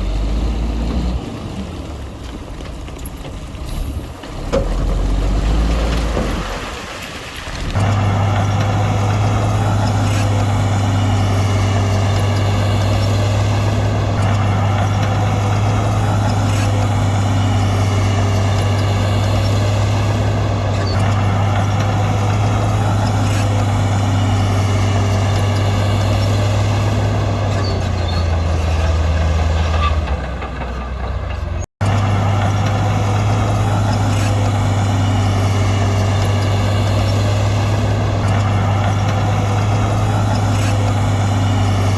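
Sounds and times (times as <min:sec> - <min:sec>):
heavy diesel machinery engine drone: 0:00.0 - 0:41.9
machinery whine: 0:31.8 - 0:41.9.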